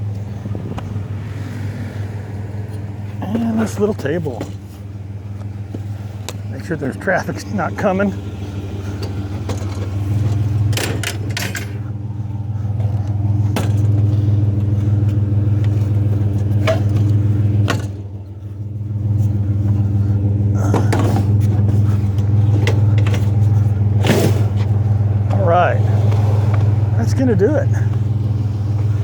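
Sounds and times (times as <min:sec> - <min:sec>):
vehicle engine running: 0:00.0 - 0:29.0
clicks and rattles: 0:08.9 - 0:12.0.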